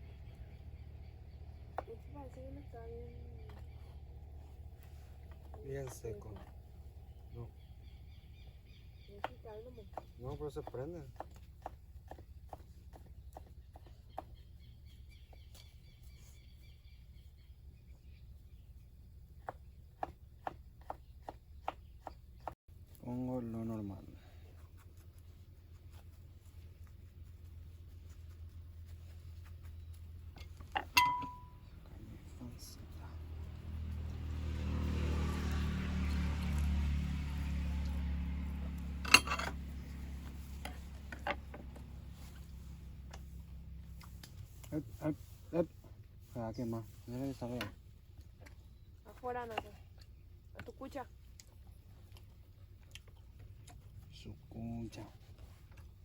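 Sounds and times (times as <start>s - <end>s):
metallic clink of cookware: 31.0s - 31.5s.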